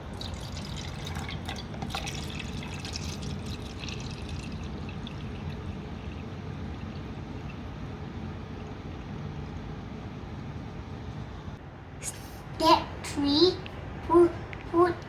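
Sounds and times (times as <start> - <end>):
liquid pouring into a cup: 0.0 - 7.8.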